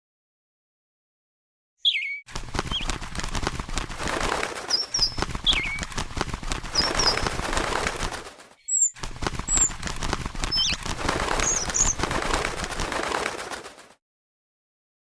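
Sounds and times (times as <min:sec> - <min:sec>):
short high bird chirps: 0:01.8 - 0:02.8, 0:08.6 - 0:09.0
birds fluttering wings: 0:02.3 - 0:14.0.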